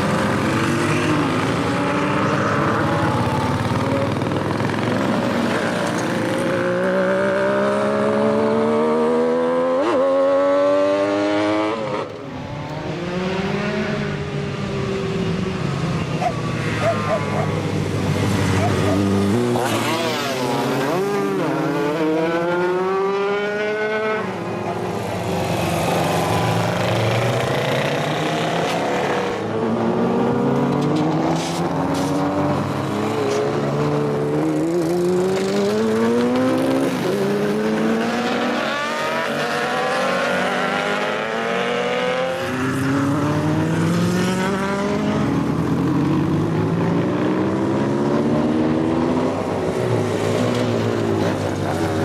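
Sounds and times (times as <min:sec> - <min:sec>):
motorcycle engines revving: 0:00.0 - 0:52.0.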